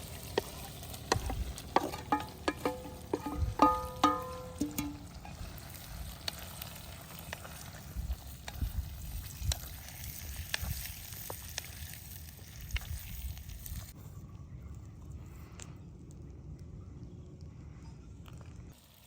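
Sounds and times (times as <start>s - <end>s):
food sizzling in a pan: 0.0s - 14.0s, 18.7s - 19.0s.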